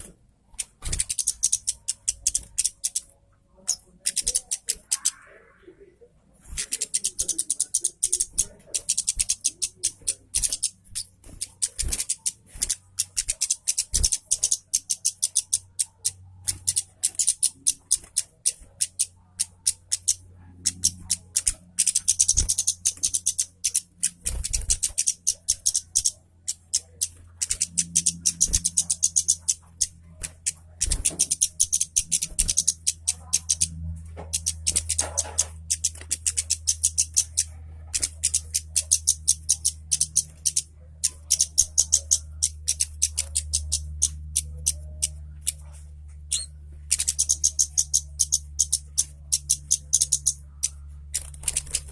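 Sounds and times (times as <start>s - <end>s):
songbird twittering: 0.0s - 5.4s, 6.5s - 51.9s
low steady hum: 0.0s - 51.9s.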